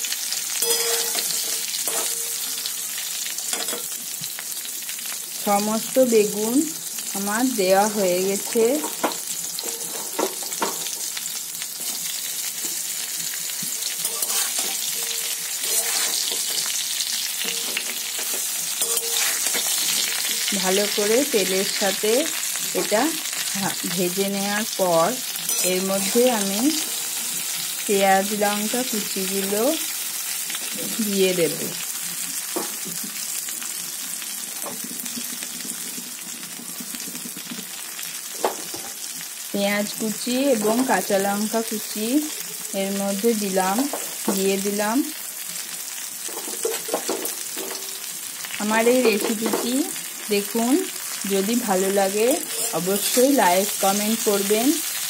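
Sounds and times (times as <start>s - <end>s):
vegetables sizzling in oil: 0.0s - 55.0s
metal spatula scraping: 0.6s - 3.9s, 9.5s - 10.2s, 11.8s - 21.7s, 25.3s - 27.5s, 52.3s - 55.0s.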